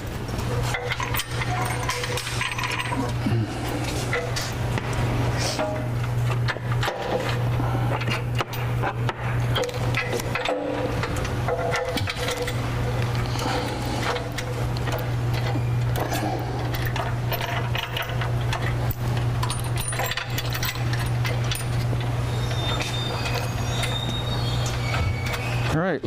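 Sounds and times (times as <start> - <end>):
steady low hum: 0.0 - 26.0
metal bolts clinking: 0.6 - 3.2, 8.0 - 12.6, 16.7 - 25.4.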